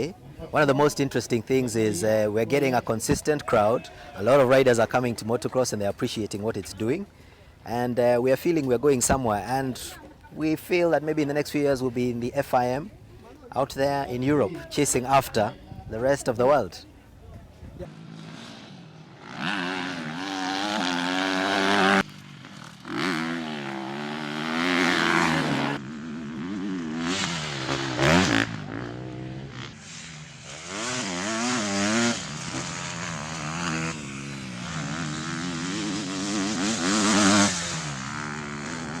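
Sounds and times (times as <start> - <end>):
motocross engines revving: 17.9 - 39.0.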